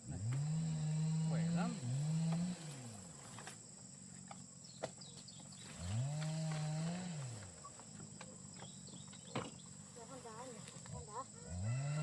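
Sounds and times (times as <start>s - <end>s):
insects droning: 0.0s - 12.0s
farm animal long low call: 10.9s - 12.0s.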